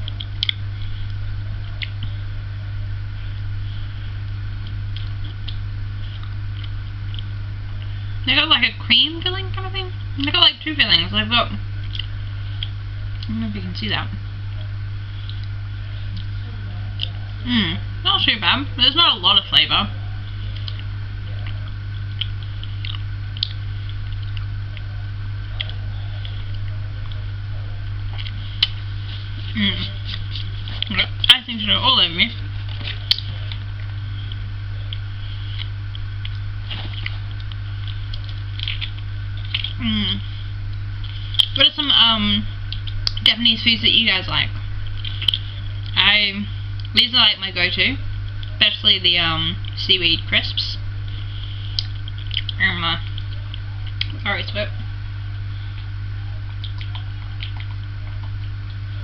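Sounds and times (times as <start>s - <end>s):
person chewing wet mouth sounds: 0.0s - 2.1s, 4.6s - 7.4s, 11.8s - 13.3s, 14.5s - 17.4s, 20.0s - 27.2s, 32.7s - 41.6s, 42.7s - 43.2s, 44.8s - 46.0s, 51.2s - 54.2s, 55.7s - 58.9s
steady low hum: 0.0s - 59.0s
mouth clicks of chewing: 33.1s - 33.3s, 45.0s - 46.0s, 51.8s - 54.2s, 56.5s - 58.5s.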